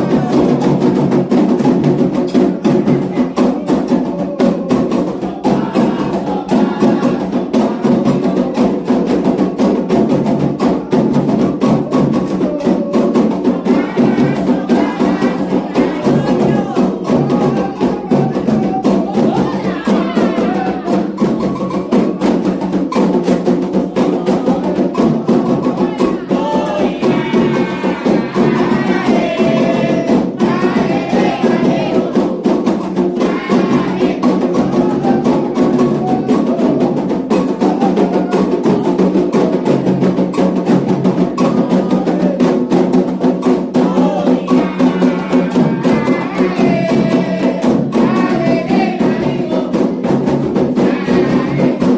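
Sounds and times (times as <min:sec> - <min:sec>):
person singing: 0:00.0 - 0:00.9, 0:10.6 - 0:22.4, 0:23.8 - 0:32.5, 0:33.1 - 0:39.6, 0:43.8 - 0:51.9
hand drums fast rhythm: 0:00.0 - 0:51.9
struck timekeeping beat: 0:11.2 - 0:38.0.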